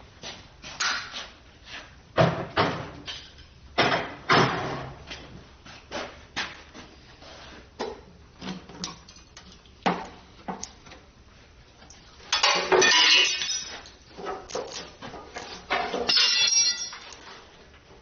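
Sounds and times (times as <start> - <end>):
metal tools clinking and knocking: 15.7 - 17.2.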